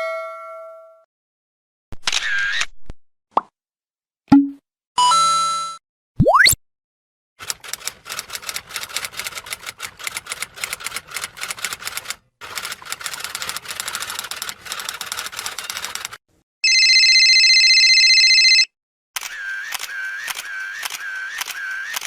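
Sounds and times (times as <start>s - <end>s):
rapid typing clicks: 7.4s - 16.2s, 19.2s - 22.0s.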